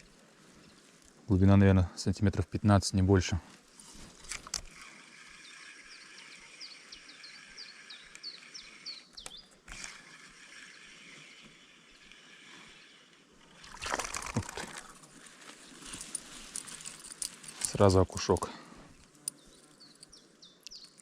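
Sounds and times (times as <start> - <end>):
rustling: 3.4 - 5.0, 13.8 - 20.2
stream trickling: 13.2 - 18.5
bird singing falling notes: 19.3 - 21.0.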